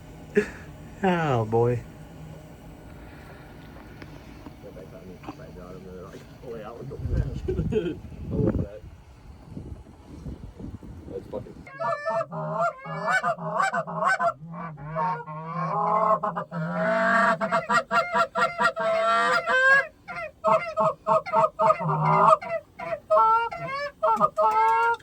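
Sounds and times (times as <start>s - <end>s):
geese honking and clucking: 11.6s - 25.0s.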